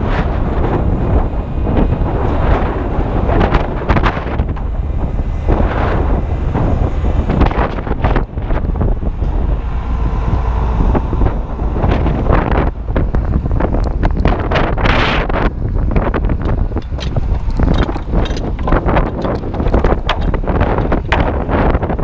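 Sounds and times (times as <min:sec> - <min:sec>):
wind buffeting microphone: 0:00.0 - 0:22.0
short knocks: 0:16.4 - 0:21.8.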